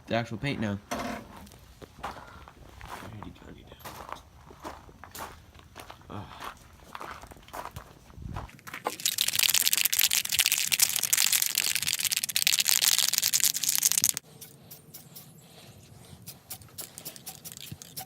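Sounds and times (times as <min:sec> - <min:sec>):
spray paint can hissing: 0:08.9 - 0:18.0.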